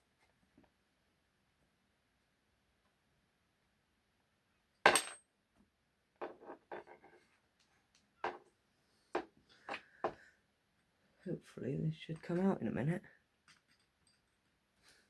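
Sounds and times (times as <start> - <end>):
tools and screws clicking and tapping: 4.9 - 5.2.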